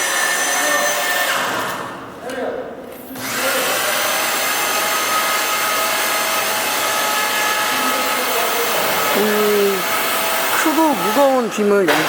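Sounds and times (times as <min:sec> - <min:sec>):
electric hoist motor whirring: 0:03.2 - 0:12.0.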